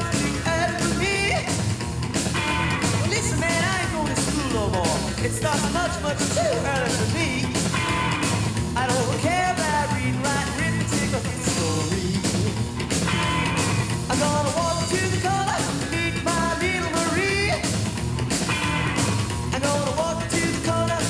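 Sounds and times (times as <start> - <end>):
man singing: 0.0 - 1.8, 2.8 - 7.8, 8.7 - 12.8, 14.1 - 17.9, 19.5 - 21.0
rockabilly band playing: 0.0 - 21.0.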